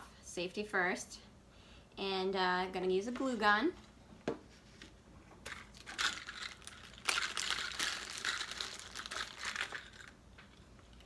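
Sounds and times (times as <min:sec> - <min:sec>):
craft supplies crinkling and rustling: 0:05.5 - 0:11.0.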